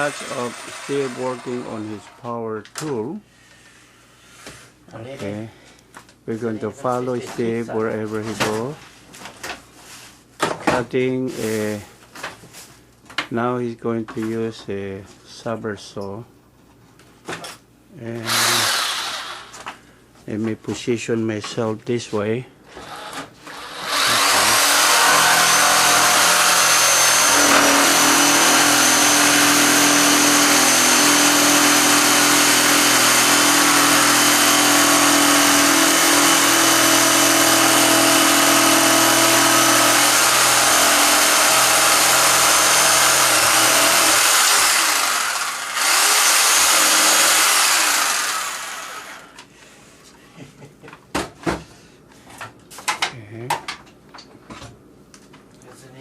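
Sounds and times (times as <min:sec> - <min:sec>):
electric saw cutting wood: 0:00.0 - 0:02.0, 0:18.2 - 0:19.7, 0:22.8 - 0:49.4.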